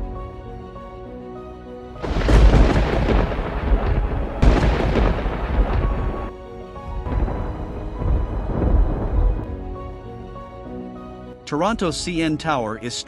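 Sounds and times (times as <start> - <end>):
background music: 0.0 - 13.0
thunder claps: 2.0 - 9.5.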